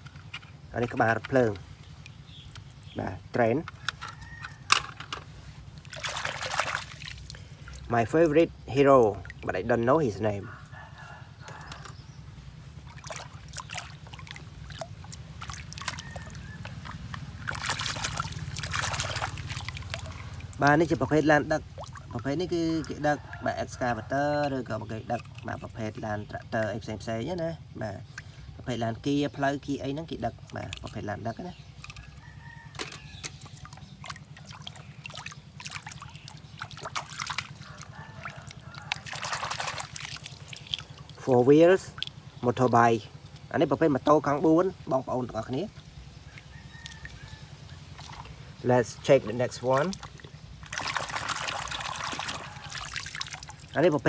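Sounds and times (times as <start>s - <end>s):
steady low hum: 0.0s - 54.0s
water sloshing and trickling: 0.0s - 54.0s
water splashes: 0.0s - 54.0s.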